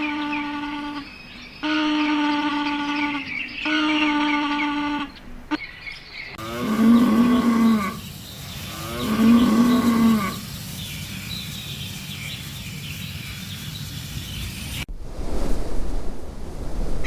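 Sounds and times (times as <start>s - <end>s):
steady background hiss: 4.5s - 17.0s
cow mooing: 6.4s - 8.0s.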